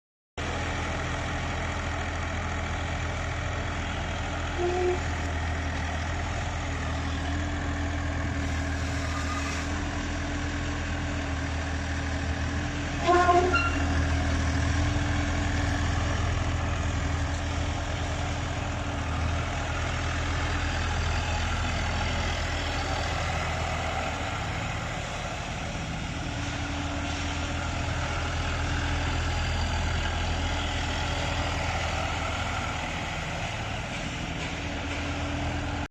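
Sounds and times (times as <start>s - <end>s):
excavator diesel engine running: 0.4s - 35.9s
short high-pitched squeal: 8.5s - 9.9s, 13.0s - 14.0s.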